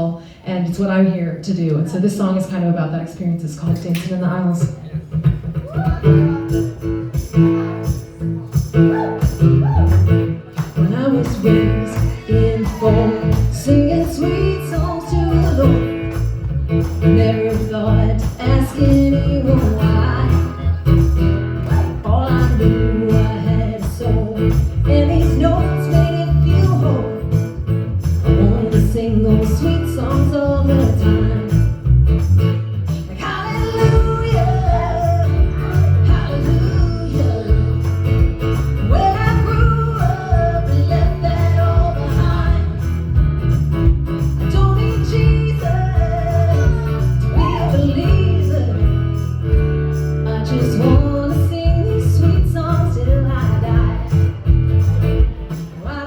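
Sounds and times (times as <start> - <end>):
guitar-led band: 0.0 - 56.0
person singing: 10.7 - 16.3, 17.0 - 27.3, 28.3 - 31.8, 33.0 - 38.0, 38.8 - 43.1, 44.4 - 49.0, 50.3 - 54.4.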